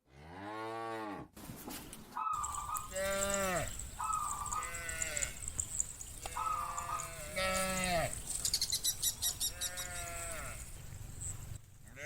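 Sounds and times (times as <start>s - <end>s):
rapid ticks: 2.4s - 9.5s
cattle bawling: 2.4s - 11.3s.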